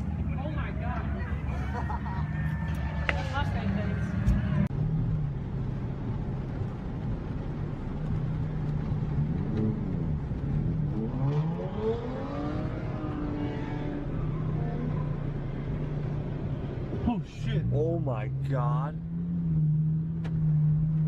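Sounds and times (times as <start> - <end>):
car engine revving: 8.4 - 21.0.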